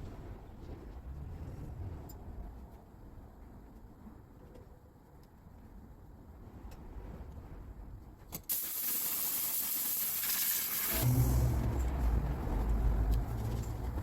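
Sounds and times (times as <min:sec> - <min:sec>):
low rumble of rushing air: 0:00.1 - 0:03.2, 0:10.7 - 0:14.0
compressed air hissing: 0:08.5 - 0:11.9.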